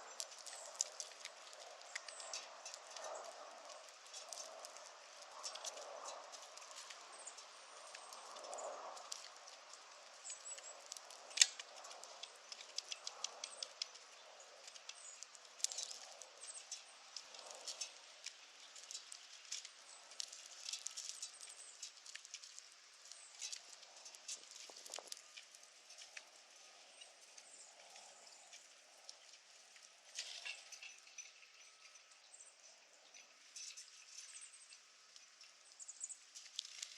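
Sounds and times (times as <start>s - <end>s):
squirrel gnawing clicks and scratches: 0.0s - 31.0s.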